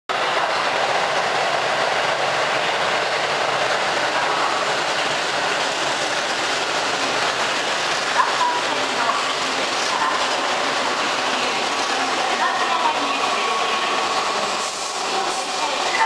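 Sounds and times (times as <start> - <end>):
train wheels rushing on rails: 0.1 - 16.0.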